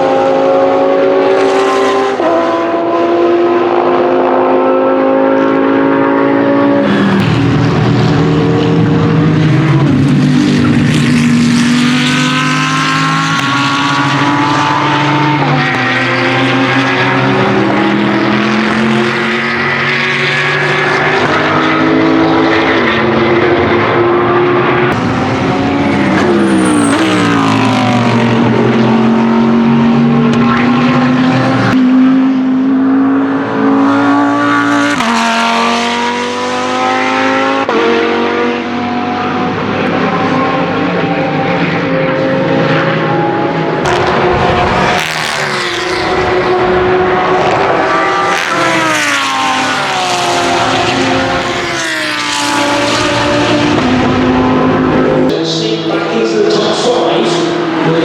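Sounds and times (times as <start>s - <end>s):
racing car engine at full throttle: 0.0s - 58.0s.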